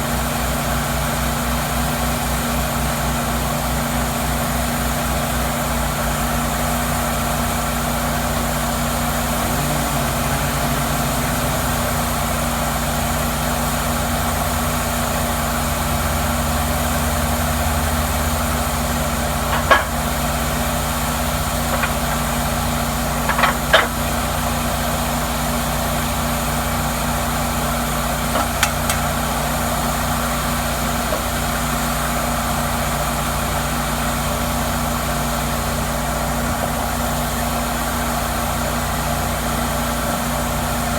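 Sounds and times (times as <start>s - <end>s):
sawmill mechanical hum: 0.0s - 40.9s
sharp clicks or knocks: 23.3s - 23.9s.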